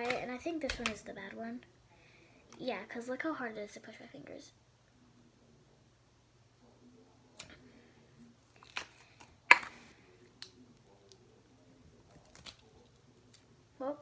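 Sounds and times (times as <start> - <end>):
slime clicking and popping: 9.5 - 9.7.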